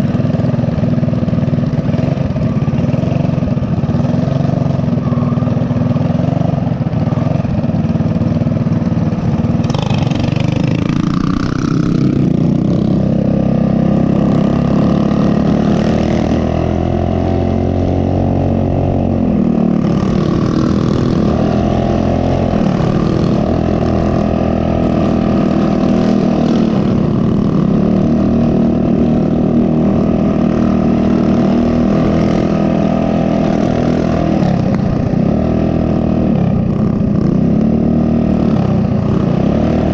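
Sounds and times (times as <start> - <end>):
small motorbike engine revving: 8.6 - 39.9.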